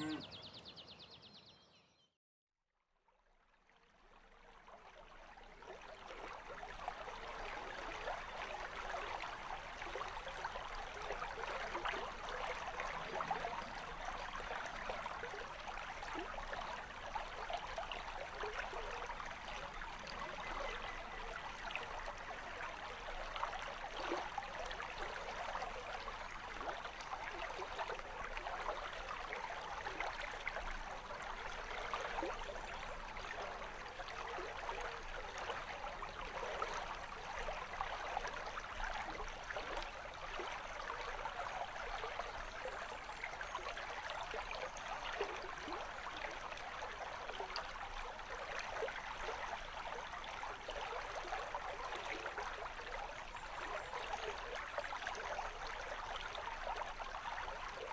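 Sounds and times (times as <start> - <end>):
stream running over rocks: 4.6 - 57.9.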